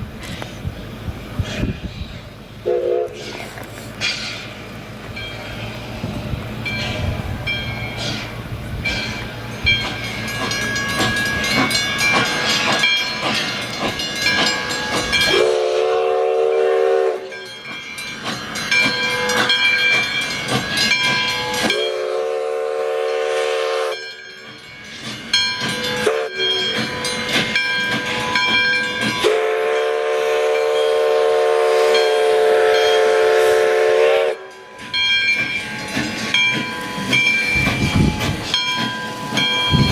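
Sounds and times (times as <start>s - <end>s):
steam locomotive hissing and clanking: 0.0s - 39.9s
steam locomotive chime whistle: 2.6s - 3.4s, 8.9s - 39.9s.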